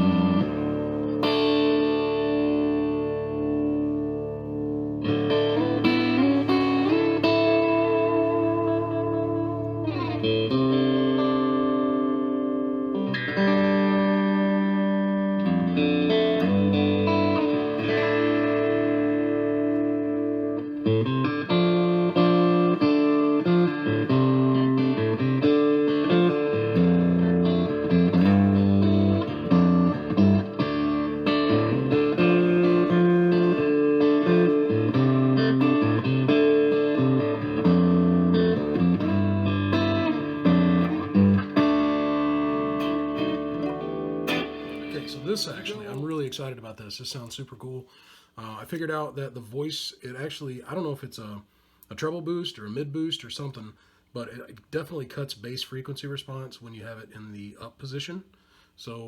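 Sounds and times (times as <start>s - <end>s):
clean electric guitar: 0.0s - 46.6s.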